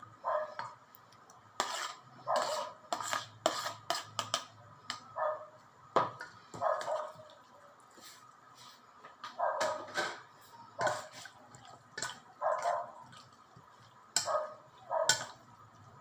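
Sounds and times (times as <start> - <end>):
dog barking: 0.2 - 0.7, 2.3 - 2.8, 5.2 - 5.6, 6.6 - 7.3, 9.4 - 10.0, 12.4 - 13.0, 14.2 - 15.4.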